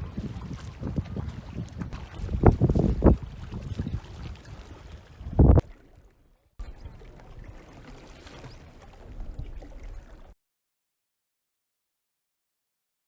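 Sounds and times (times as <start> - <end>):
water noise from kayaking: 0.0 - 10.4.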